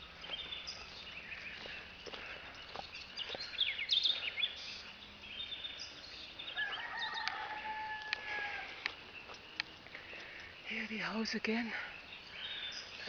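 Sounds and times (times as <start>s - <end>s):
birds chirping: 0.0s - 13.0s
rooster crowing: 6.5s - 8.8s.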